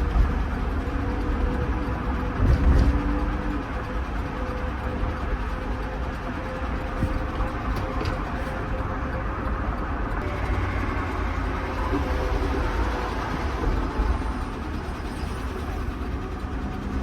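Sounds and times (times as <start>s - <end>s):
engine running with rod knock: 0.0s - 9.4s
road noise: 0.0s - 17.0s.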